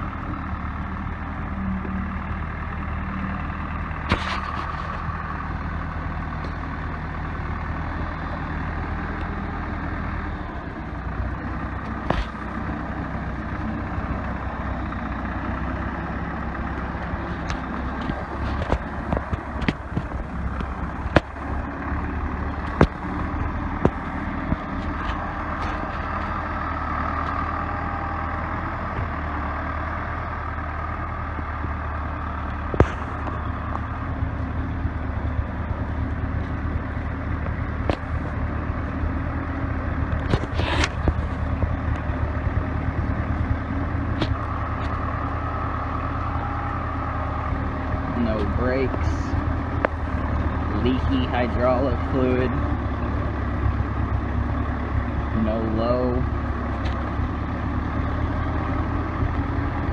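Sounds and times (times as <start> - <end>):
diesel engine running: 0.0 - 59.9
sharp knocks and clanks: 17.4 - 21.6, 22.6 - 26.0.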